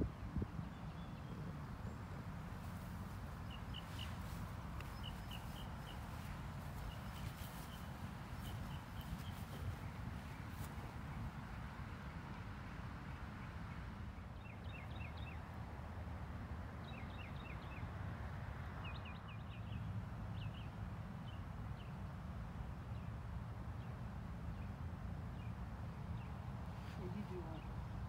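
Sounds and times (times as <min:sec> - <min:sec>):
low outdoor rumble: 0:00.0 - 0:14.6
songbird chirping: 0:00.1 - 0:11.4.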